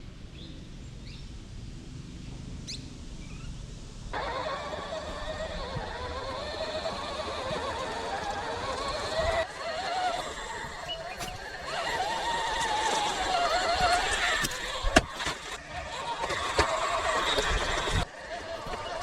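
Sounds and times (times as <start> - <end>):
electric motor whining: 4.1 - 19.0
low rumbling: 4.4 - 15.6.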